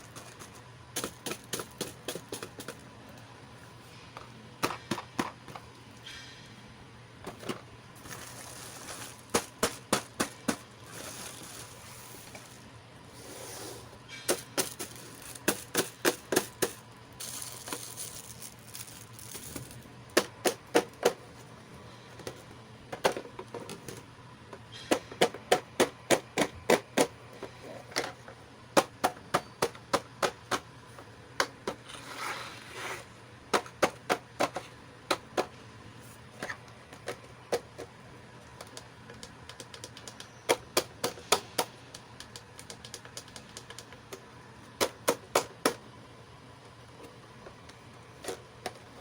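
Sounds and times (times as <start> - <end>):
plastic toy pieces clicking: 14.3 - 21.1, 38.6 - 44.0.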